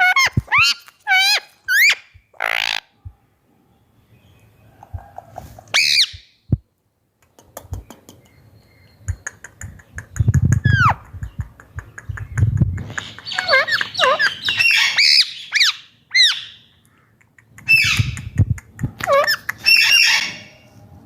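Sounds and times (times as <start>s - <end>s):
parakeet harsh squawk: 0.0s - 2.9s, 5.8s - 6.2s
parakeet whistled calls: 5.8s - 6.2s.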